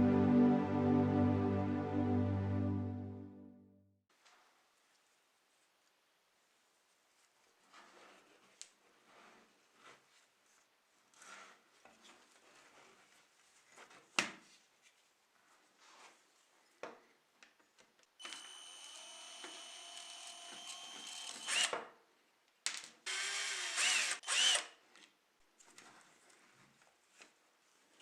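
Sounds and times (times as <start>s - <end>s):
electric power tool whirring: 18.2s - 21.8s, 23.1s - 24.7s.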